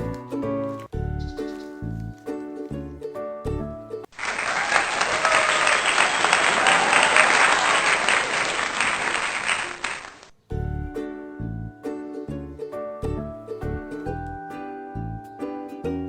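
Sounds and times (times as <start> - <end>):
plucked-string background music: 0.0 - 4.1, 10.4 - 16.0
crowd applauding: 4.1 - 10.4.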